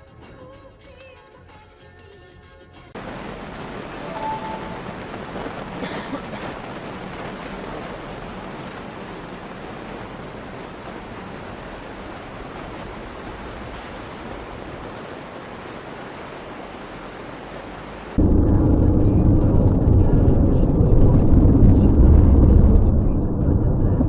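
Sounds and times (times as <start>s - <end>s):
steady rushing noise: 3.0s - 24.0s
loud low rumble: 18.2s - 24.0s.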